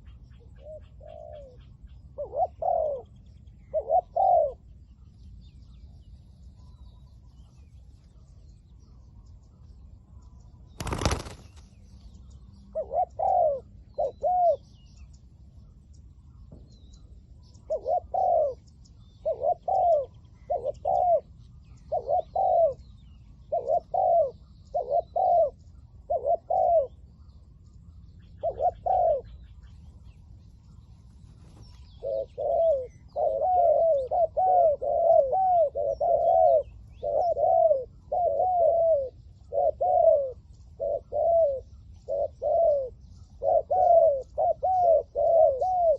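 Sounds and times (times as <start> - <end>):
doves cooing: 0.0 - 4.7, 10.8 - 11.6, 12.7 - 14.7, 17.5 - 22.8, 23.5 - 27.0, 28.4 - 29.4, 31.4 - 45.9.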